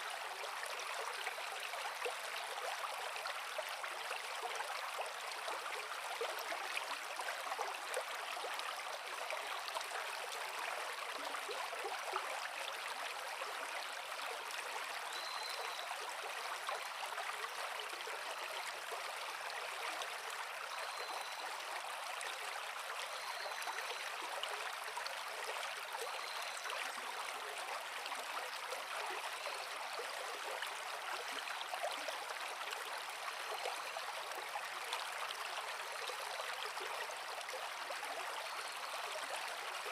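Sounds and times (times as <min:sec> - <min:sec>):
creek flowing over rocks: 0:00.0 - 0:39.9.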